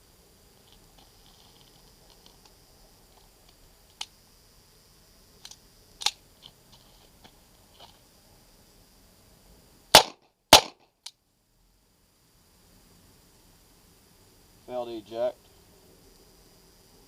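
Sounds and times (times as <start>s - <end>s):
faint sharp clicks and pops: 0.6s - 4.2s
pistol shots: 9.9s - 10.8s.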